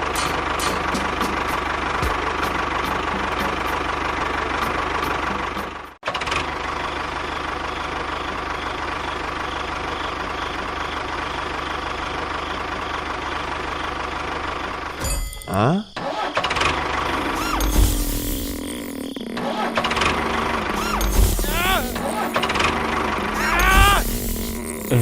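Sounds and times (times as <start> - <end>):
motor running: 16.6 - 25.0.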